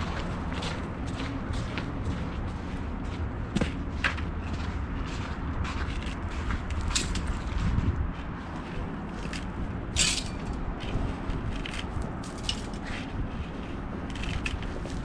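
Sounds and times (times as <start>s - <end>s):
crunching and scraping in snow: 4.5s - 15.0s.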